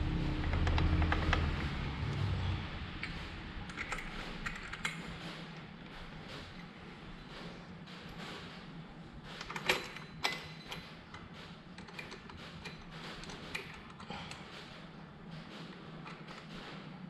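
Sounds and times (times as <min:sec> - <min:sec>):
tools and metal parts clinking: 0:03.0 - 0:05.2, 0:09.3 - 0:14.6.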